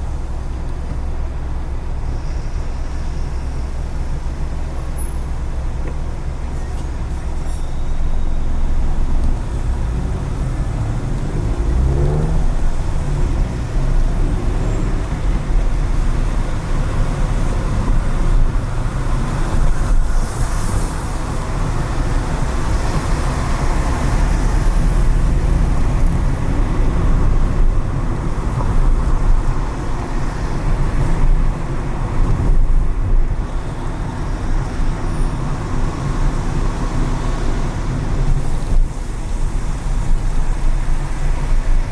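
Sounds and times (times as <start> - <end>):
car engine and road rumble: 0.0 - 41.9
tyre hiss on wet road: 19.2 - 24.4.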